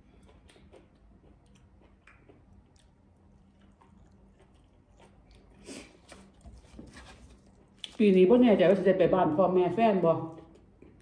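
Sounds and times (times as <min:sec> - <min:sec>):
faint chewing: 0:00.0 - 0:08.1, 0:10.3 - 0:11.0.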